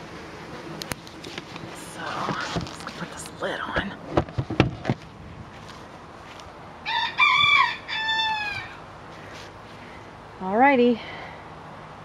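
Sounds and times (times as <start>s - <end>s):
rooster crowing: 6.8s - 8.9s.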